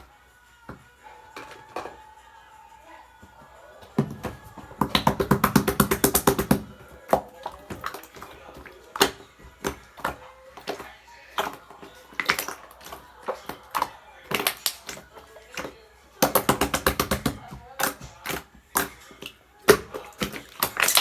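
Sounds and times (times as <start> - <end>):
slime squished by hand popping: 4.3 - 21.0.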